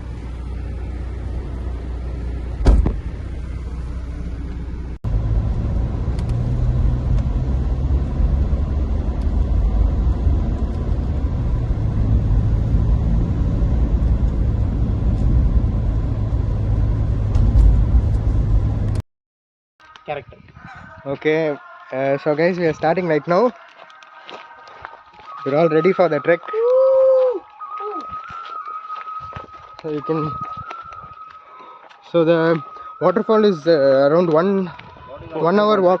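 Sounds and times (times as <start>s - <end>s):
vehicle interior rumble: 0.0s - 19.0s
sharp knock: 2.6s - 3.0s.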